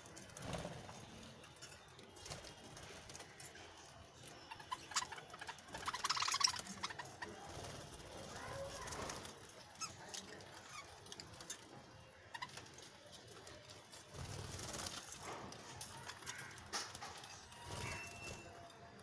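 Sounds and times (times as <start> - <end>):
budgerigars chirping: 4.5 - 7.2.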